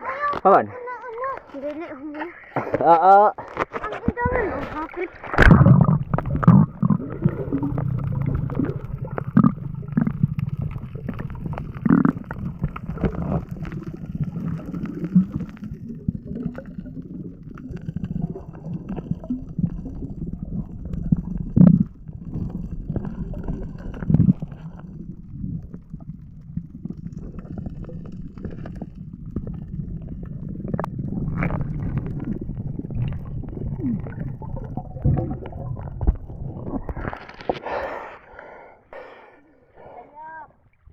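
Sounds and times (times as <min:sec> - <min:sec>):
underwater rumble and gurgling: 0:01.3 - 0:40.9
knocks underwater: 0:03.4 - 0:13.5, 0:29.3 - 0:37.7.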